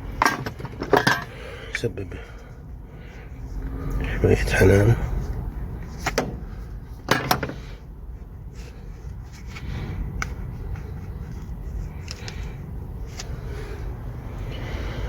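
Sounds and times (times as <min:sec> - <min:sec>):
low steady rumble: 0:00.0 - 0:15.0
tools clicking and knocking: 0:00.2 - 0:01.3, 0:07.0 - 0:07.6.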